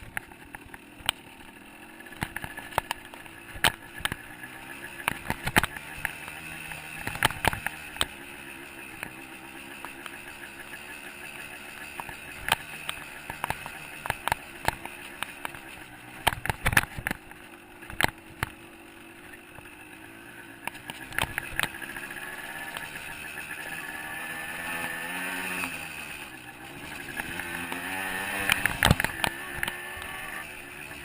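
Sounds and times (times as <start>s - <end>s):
dirt bike engine running: 0.0s - 31.0s.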